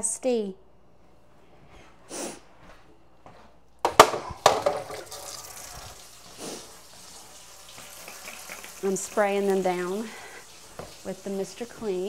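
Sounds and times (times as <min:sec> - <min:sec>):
hard knocks in kitchen sink: 0:03.8 - 0:05.3
water running from tap: 0:04.4 - 0:12.0.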